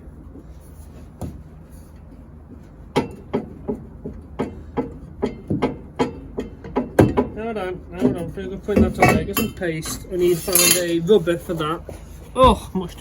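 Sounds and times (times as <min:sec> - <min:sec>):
metal parts knocking and clanking: 0:08.1 - 0:11.0.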